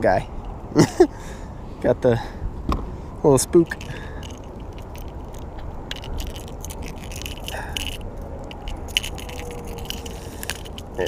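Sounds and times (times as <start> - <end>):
low background rumble: 0.0 - 11.0
small clicks and scrapes: 3.6 - 11.0.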